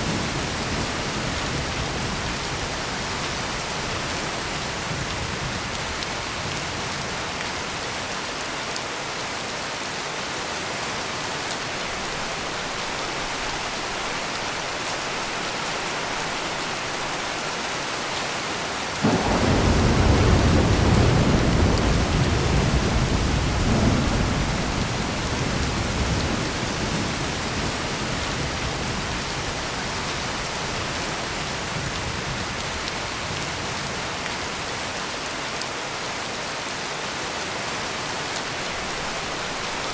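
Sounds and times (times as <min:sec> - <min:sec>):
heavy rain: 0:00.0 - 0:39.9
thunder rumbling: 0:19.0 - 0:30.1.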